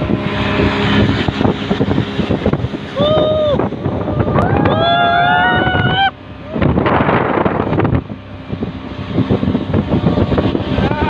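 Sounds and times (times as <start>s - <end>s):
rushing water: 0.0s - 11.0s
wind buffeting microphone: 0.0s - 11.0s
person yelling: 3.0s - 3.6s, 10.8s - 11.0s.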